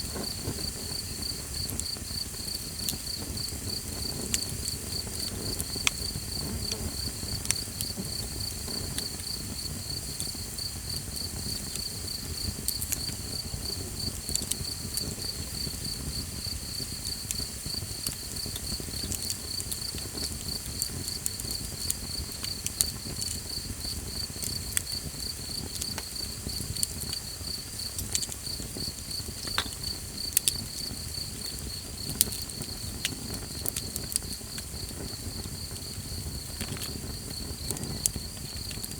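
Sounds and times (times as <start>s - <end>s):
campfire crackling and popping: 0.0s - 38.9s
crickets chirping: 0.0s - 38.9s.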